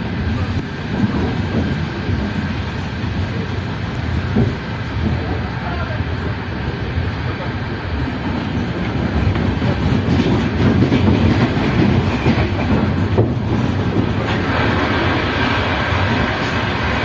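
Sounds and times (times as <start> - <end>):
passing train rushing hiss: 0.0 - 17.0
train rumbling on rails: 0.0 - 17.0
wheels clattering over rail joints: 8.0 - 17.0.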